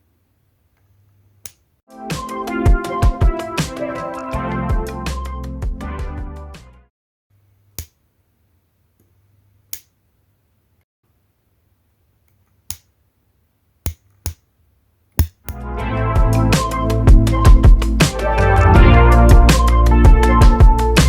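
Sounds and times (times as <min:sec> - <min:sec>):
spot welder snapping: 0:09.7 - 0:10.0.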